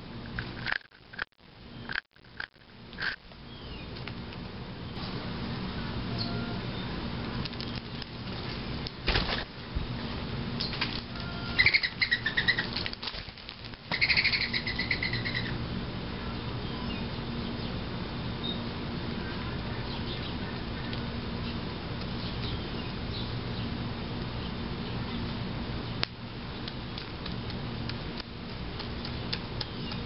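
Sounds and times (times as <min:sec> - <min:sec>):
steady low hum: 0:00.0 - 0:30.0
faint bird chirps: 0:06.1 - 0:06.9, 0:10.6 - 0:12.7
small bird chattering: 0:11.5 - 0:12.8, 0:13.9 - 0:15.6.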